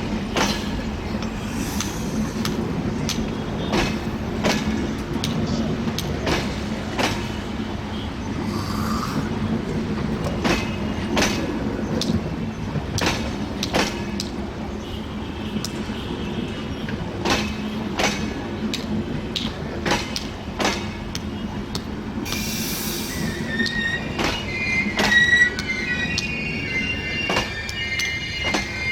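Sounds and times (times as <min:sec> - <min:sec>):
wheels clacking over rail joints: 0:00.0 - 0:07.7, 0:09.7 - 0:14.5, 0:17.1 - 0:26.4
train rumbling past: 0:00.0 - 0:15.9, 0:16.5 - 0:28.9
high-pitched wheel squeal: 0:22.9 - 0:28.9.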